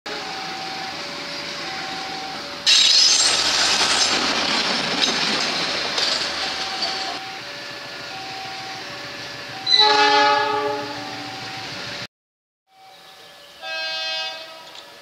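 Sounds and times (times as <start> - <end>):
two-tone crossing alarm: 0.1 - 2.9, 6.4 - 12.0
train wheels on rails: 0.1 - 10.0.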